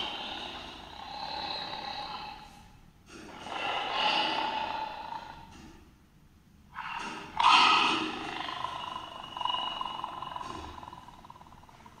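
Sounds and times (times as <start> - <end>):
lion grunting calls: 0.0 - 5.8, 6.7 - 12.0.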